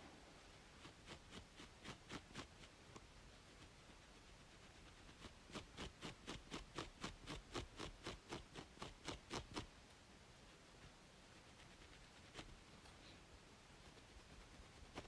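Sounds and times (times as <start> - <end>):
white noise hiss: 0.0 - 15.0
scratching on scalp: 0.5 - 9.8, 10.4 - 15.0.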